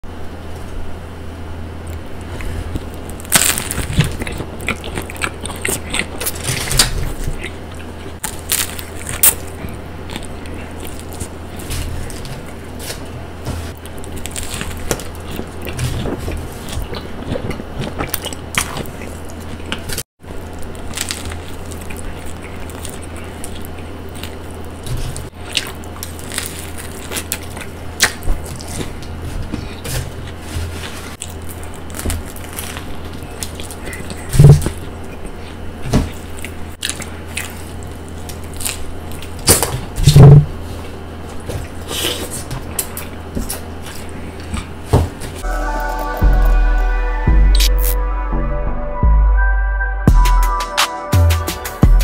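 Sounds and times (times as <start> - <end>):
steady low hum: 0.0 - 52.0
chewing noises: 1.9 - 13.1, 13.8 - 39.7
crunching crusty bread: 2.0 - 44.9.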